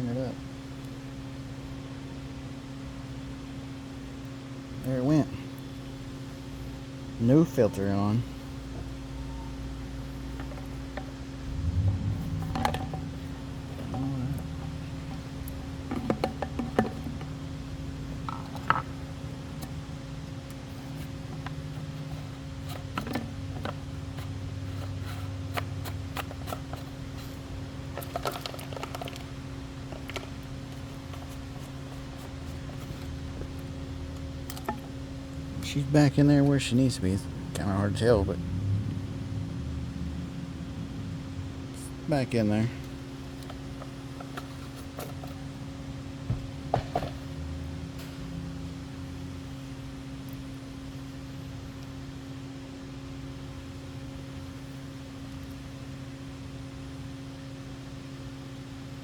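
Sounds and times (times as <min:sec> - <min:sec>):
steady background hum: 0:00.0 - 0:59.0
clicks and knocks of handled parts: 0:27.9 - 0:29.3, 0:29.9 - 0:33.1.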